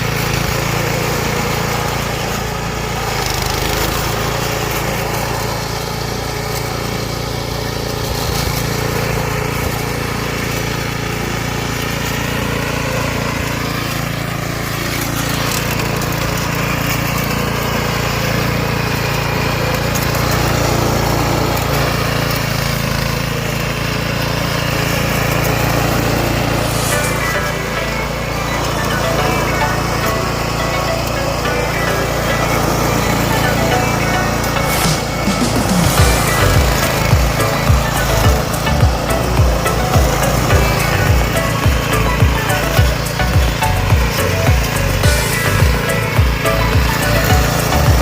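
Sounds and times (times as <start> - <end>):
lawn mower running: 0.0 - 48.0.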